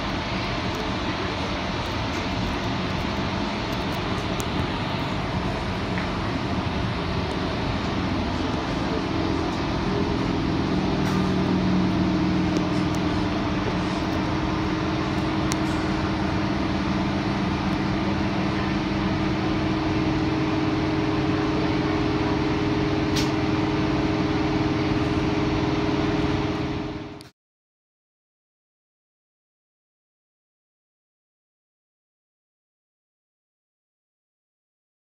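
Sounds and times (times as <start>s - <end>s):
electrical hum: 0.0s - 27.2s
train wheels rumbling on rail: 0.0s - 27.2s.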